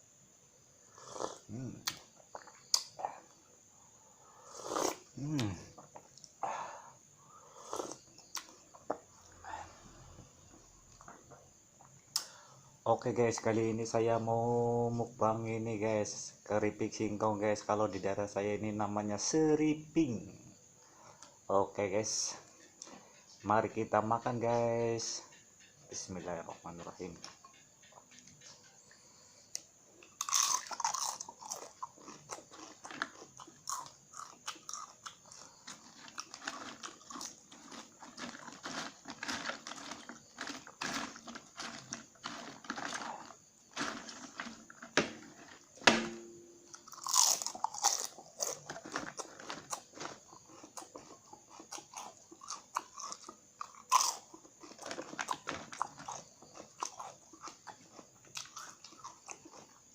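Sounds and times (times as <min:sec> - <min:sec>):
crunching chips chewing: 0:29.6 - 0:45.8, 0:46.7 - 0:59.9.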